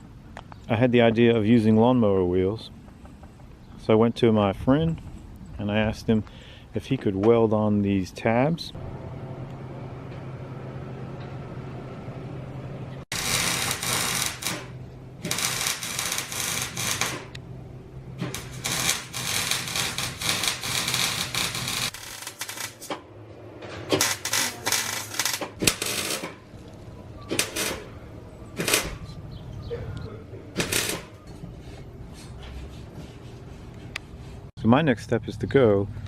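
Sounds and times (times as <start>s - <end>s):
steady low hum: 8.4s - 36.0s
electric welding sizzle: 13.1s - 17.4s, 18.2s - 23.0s, 23.9s - 26.5s, 27.3s - 27.9s, 28.6s - 29.0s, 30.6s - 31.2s.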